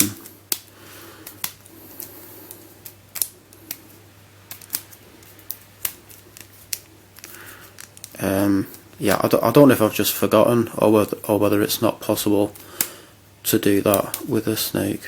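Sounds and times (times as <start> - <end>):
plastic puzzle clicking: 4.5 - 8.2.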